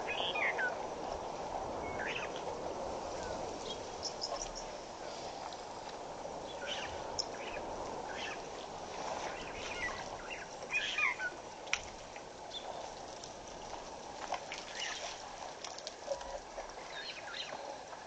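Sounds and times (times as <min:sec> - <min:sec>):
birds chirping: 0:00.0 - 0:00.8, 0:01.8 - 0:02.4, 0:03.2 - 0:04.8, 0:06.5 - 0:08.5, 0:09.3 - 0:11.4, 0:16.8 - 0:17.8
steady background hiss: 0:00.0 - 0:18.0.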